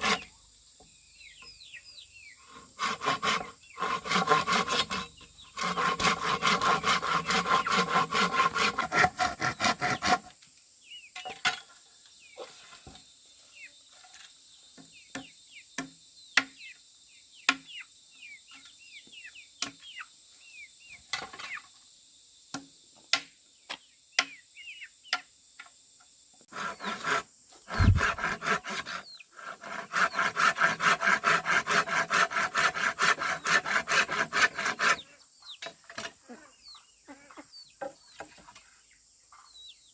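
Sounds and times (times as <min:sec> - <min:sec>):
hand saw cutting bamboo: 0:00.0 - 0:00.3, 0:02.5 - 0:10.3, 0:26.5 - 0:35.0
heavy thump: 0:27.7 - 0:28.4.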